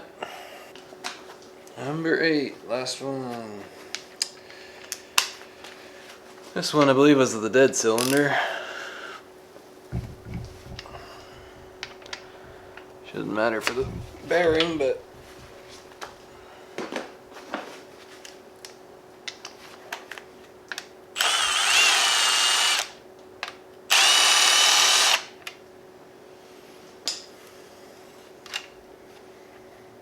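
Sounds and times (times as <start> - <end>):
power tool motor whirring: 9.9 - 11.8, 21.2 - 22.9, 23.9 - 25.3.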